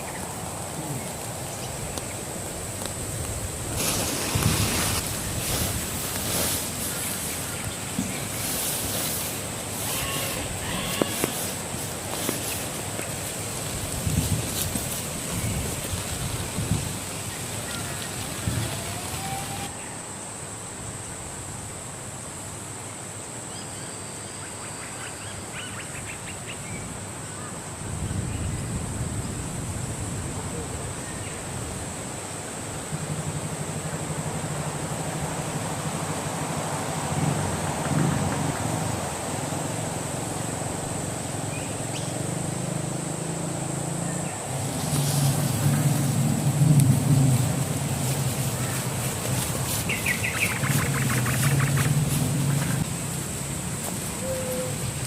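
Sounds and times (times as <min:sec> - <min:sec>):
outdoor background hiss: 0:00.0 - 0:55.0
high-pitched whine: 0:17.8 - 0:19.8
low engine hum: 0:32.9 - 0:55.0.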